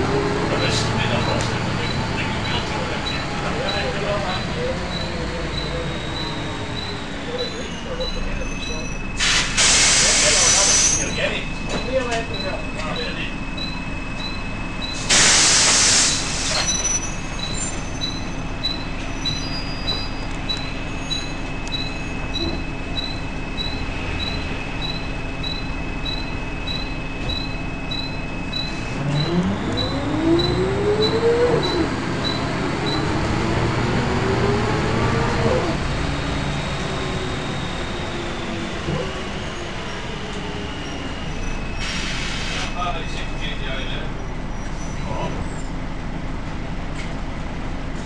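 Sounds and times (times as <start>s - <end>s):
diesel bus engine running: 0.0s - 48.0s
loud air hiss: 9.2s - 11.0s, 15.0s - 16.8s, 41.8s - 42.7s.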